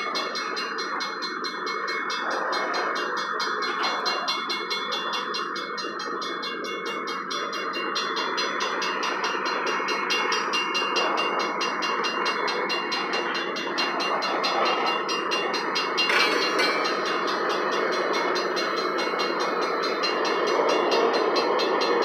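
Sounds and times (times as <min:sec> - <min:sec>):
freight train wheels rumbling: 0:00.0 - 0:22.0.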